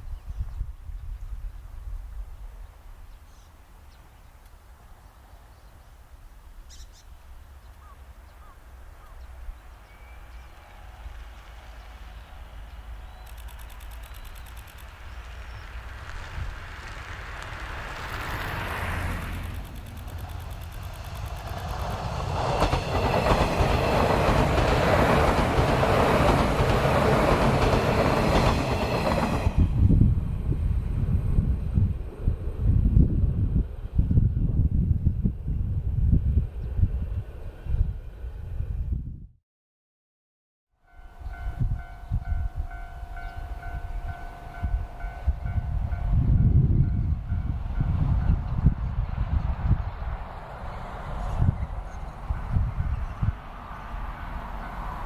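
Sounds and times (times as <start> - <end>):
wind rumble on microphone: 0.0 - 3.4, 15.1 - 39.4, 41.2 - 55.0
faint bird chirps: 6.6 - 14.8
train wheels on rail: 9.3 - 34.2, 41.2 - 55.0.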